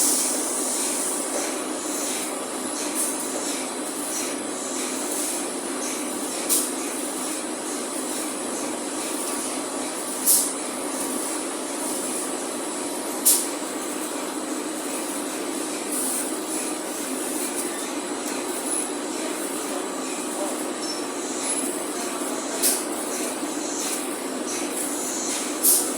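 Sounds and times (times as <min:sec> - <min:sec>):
welding arc hissing: 0:00.0 - 0:25.9.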